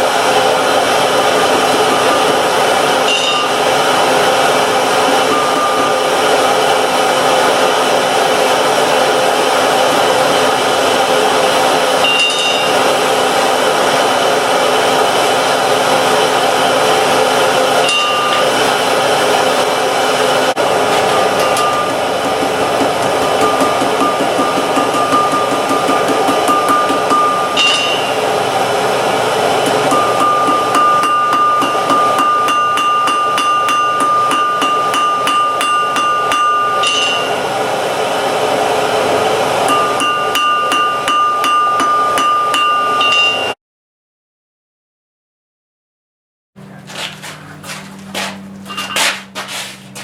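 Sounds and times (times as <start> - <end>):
forge blower air rush: 0.0 - 43.2
hammer striking steel on anvil: 1.0 - 7.4, 12.0 - 12.9, 17.5 - 18.9, 20.6 - 28.5, 29.6 - 37.5, 39.6 - 43.6, 48.7 - 49.4.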